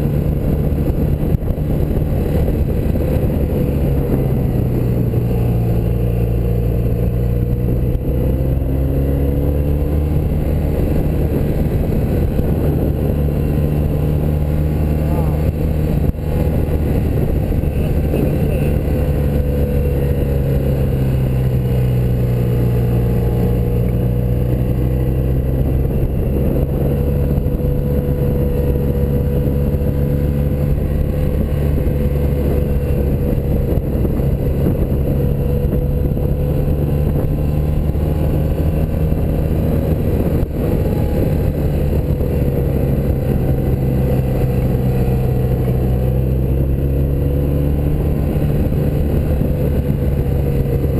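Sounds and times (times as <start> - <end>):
motorcycle engine running: 0.0 - 50.9
road noise: 0.0 - 50.9
wind noise: 0.0 - 50.9.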